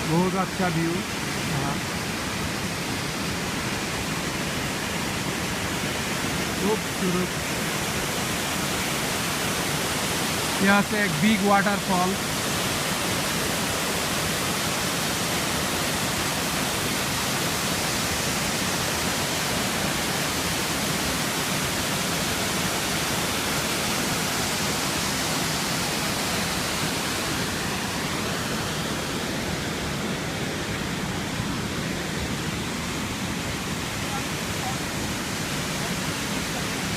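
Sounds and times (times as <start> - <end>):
waterfall roaring: 0.0 - 36.9.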